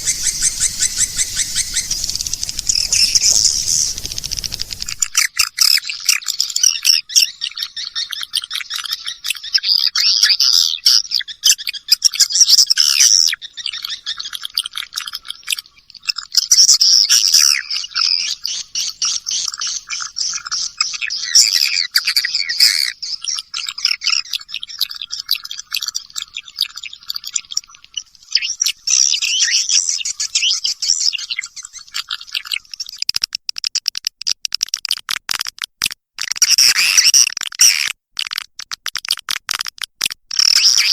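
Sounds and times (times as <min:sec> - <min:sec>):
swiftlets twittering: 0:00.0 - 0:05.3.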